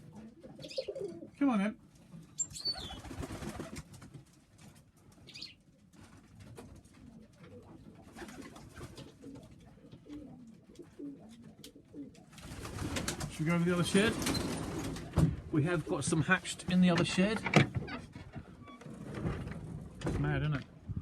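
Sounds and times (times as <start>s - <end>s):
pigeons cooing: 0.0s - 1.4s, 6.9s - 15.2s
birds scratching and rustling: 1.9s - 20.0s.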